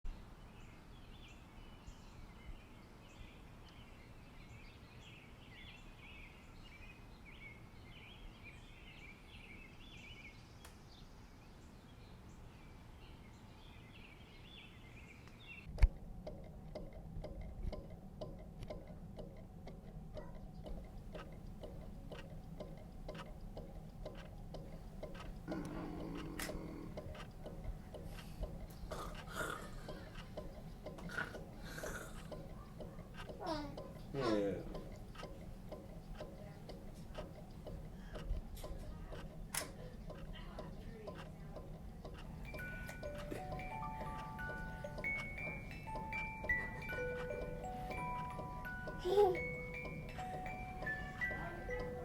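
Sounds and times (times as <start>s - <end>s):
small birds chirping: 0.1s - 52.0s
low hum with quick ticks: 15.2s - 52.0s
sharp click: 34.8s - 42.3s.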